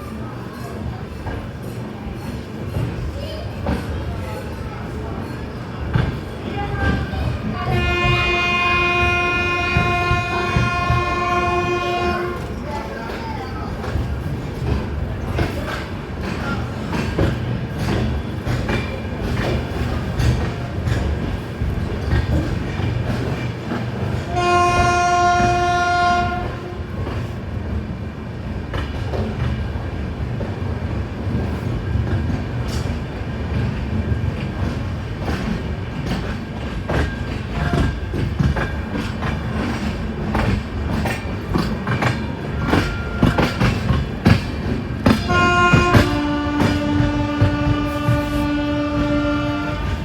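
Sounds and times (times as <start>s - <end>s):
train rumbling: 0.0s - 50.0s
train horn: 7.7s - 12.6s, 24.3s - 26.9s, 45.2s - 50.0s
wheels clicking over rail joints: 31.3s - 48.4s.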